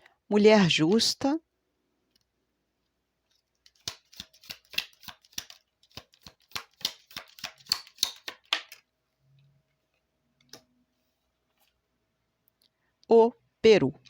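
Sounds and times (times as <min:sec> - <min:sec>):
cards being shuffled: 0:03.3 - 0:08.9.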